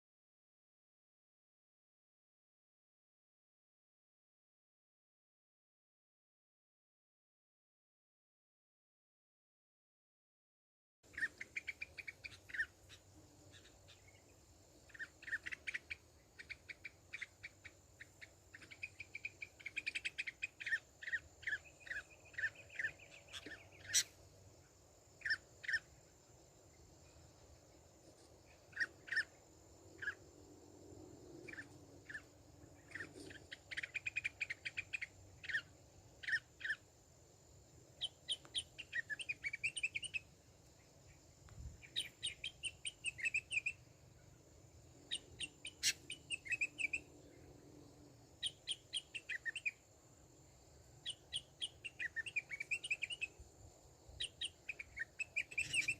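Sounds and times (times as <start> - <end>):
birds chirping: 11.1 - 26.0, 28.4 - 30.3, 31.4 - 36.8, 38.0 - 41.2, 41.8 - 44.4, 45.0 - 47.6, 48.4 - 49.8, 51.0 - 53.4, 54.2 - 55.9.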